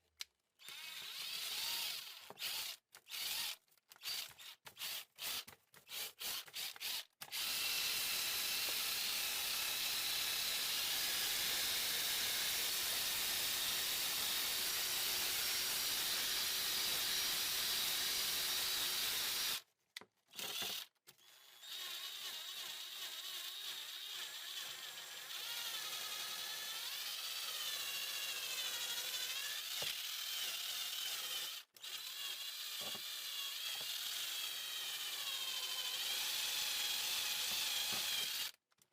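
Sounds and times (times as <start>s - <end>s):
power drill motor whine: 0.6s - 5.4s, 6.2s - 11.4s, 20.4s - 38.6s.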